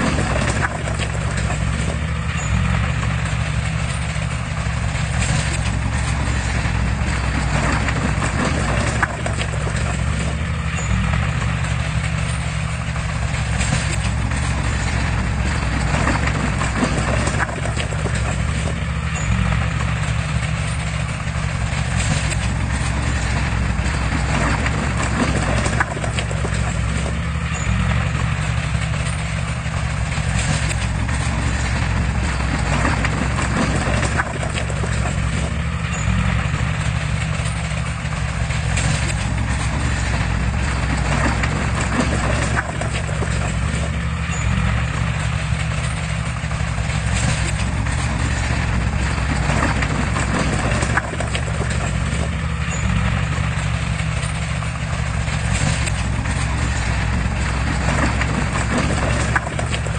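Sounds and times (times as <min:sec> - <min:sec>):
diesel machinery engine drone: 0:00.0 - 0:59.9
metallic clatter and knocks: 0:00.0 - 0:59.9.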